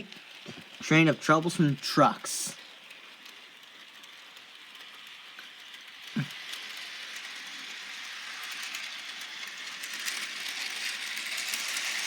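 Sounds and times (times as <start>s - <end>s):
model train wheels rattling on rails: 0.0s - 12.0s.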